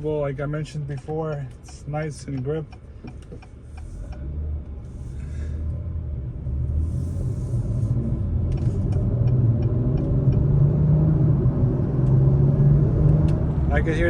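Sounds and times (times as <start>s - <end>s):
car engine accelerating: 3.2s - 14.0s.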